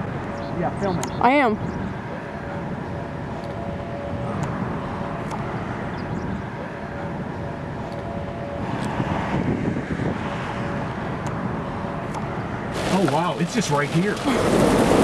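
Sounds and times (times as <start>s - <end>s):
wind: 0.0s - 15.0s
sharp ticks: 3.3s - 4.6s, 5.2s - 8.1s, 12.0s - 12.3s
rain: 12.7s - 15.0s.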